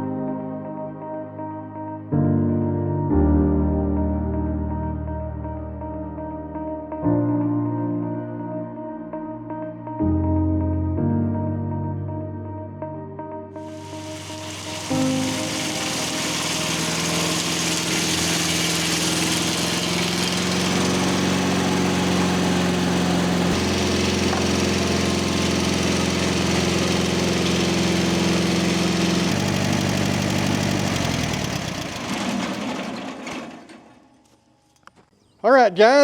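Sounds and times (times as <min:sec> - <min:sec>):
circular saw cutting wood: 0:13.8 - 0:34.0
sawmill engine under load: 0:13.8 - 0:34.2.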